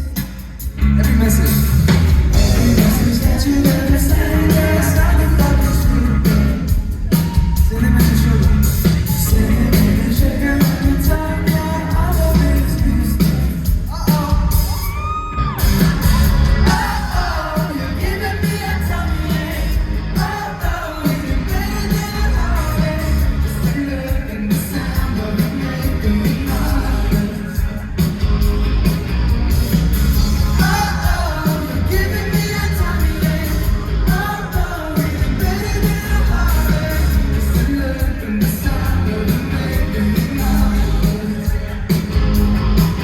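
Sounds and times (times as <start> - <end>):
live pop-rock band playing: 0.0 - 43.0
person singing: 2.3 - 15.2.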